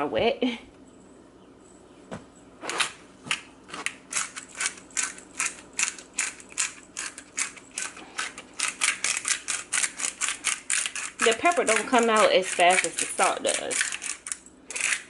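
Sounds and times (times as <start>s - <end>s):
pepper grinder ratcheting: 4.1s - 15.0s.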